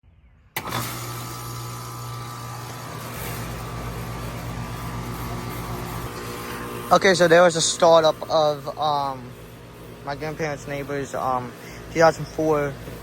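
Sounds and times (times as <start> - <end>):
air conditioner humming: 0.6 - 13.0
air conditioner whooshing: 0.6 - 13.0.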